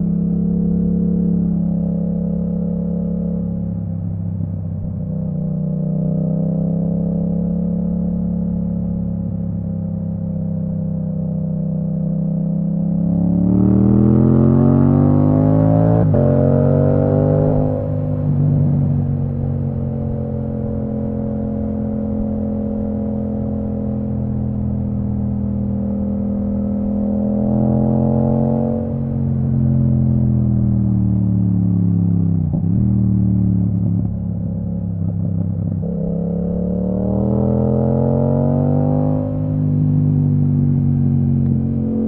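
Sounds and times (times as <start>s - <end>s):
motorcycle engine revving: 11.1s - 42.0s.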